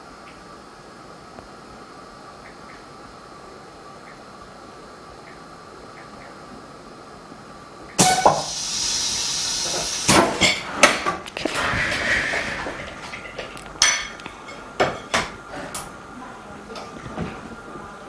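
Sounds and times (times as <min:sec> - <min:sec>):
air hissing: 0:08.0 - 0:15.8.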